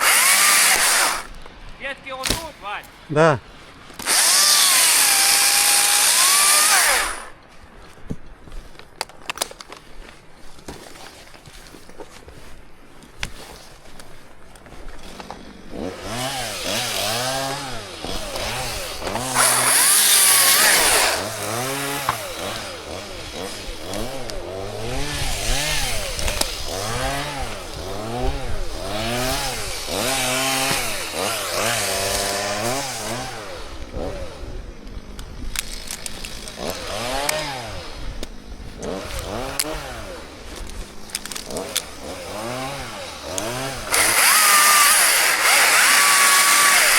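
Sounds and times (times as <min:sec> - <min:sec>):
chainsaw revving: 0:00.0 - 0:01.4, 0:04.0 - 0:07.4, 0:14.7 - 0:46.9.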